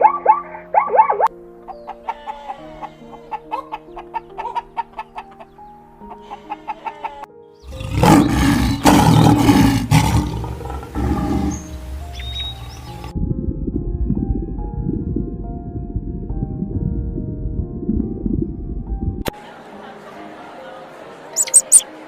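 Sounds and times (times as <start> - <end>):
plucked background music: 0.0 - 22.0
rough animal roar: 7.6 - 11.8.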